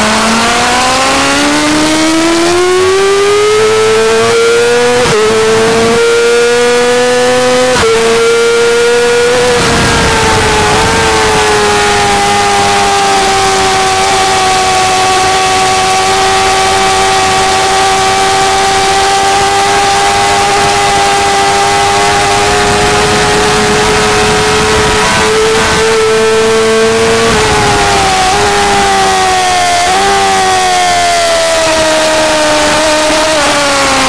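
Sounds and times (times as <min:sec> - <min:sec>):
motorcycle engine at high revs: 0:00.0 - 0:34.0
wind rush: 0:09.2 - 0:12.7, 0:20.5 - 0:29.6.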